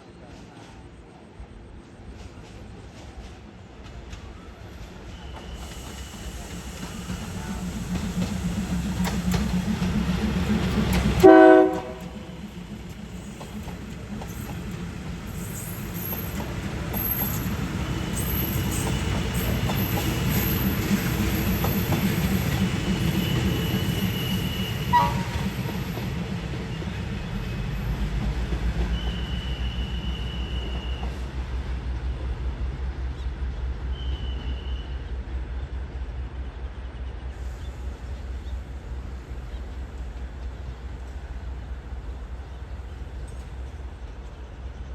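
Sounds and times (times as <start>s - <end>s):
train engine rumbling: 0.0s - 44.9s
wheels squealing on rails: 4.2s - 31.6s, 33.6s - 35.4s
train horn blast: 11.2s - 12.4s, 23.2s - 25.6s.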